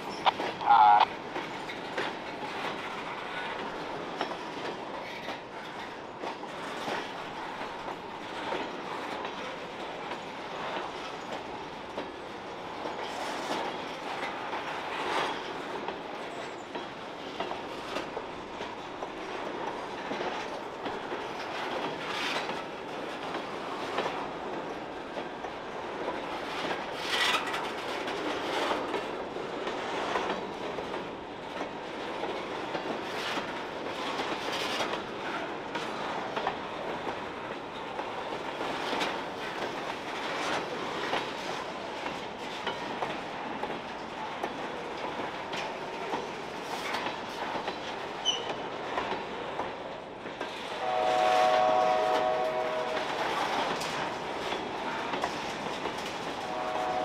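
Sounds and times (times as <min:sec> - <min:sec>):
track creaking: 0:00.0 - 0:12.2, 0:12.8 - 0:57.0
freight train wheels clicking: 0:00.0 - 0:57.0.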